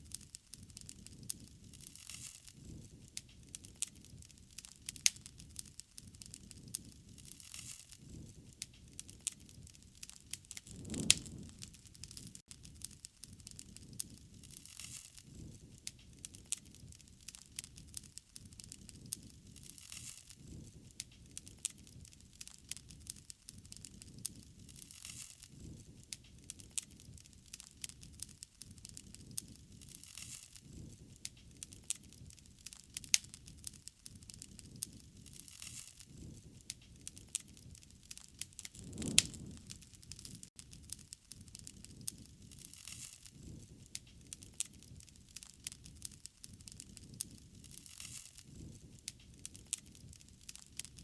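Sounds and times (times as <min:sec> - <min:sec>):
wood fire crackling and popping: 0:00.0 - 0:51.0
flames rushing softly: 0:06.2 - 0:12.8, 0:37.1 - 0:40.9.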